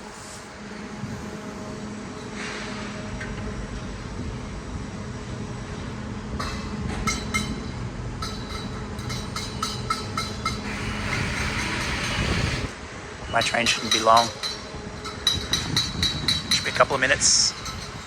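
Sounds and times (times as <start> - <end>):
train humming: 0.0 - 18.0
wheels clattering over rail joints: 13.4 - 18.0.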